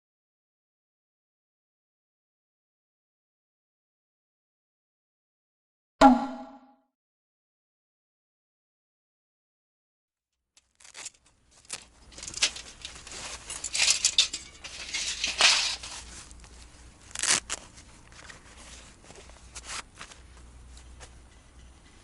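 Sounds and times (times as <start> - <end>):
crinkling and rustling: 10.6 - 21.2.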